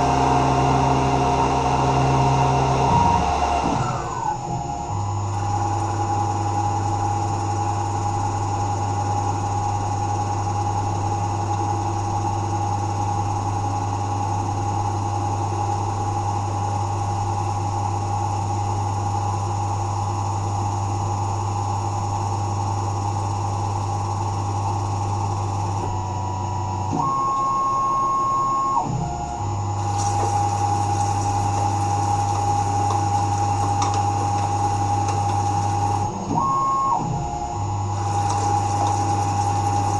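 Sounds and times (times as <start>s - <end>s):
mill spindle hum: 0.0s - 39.9s
steady whine: 21.2s - 39.9s.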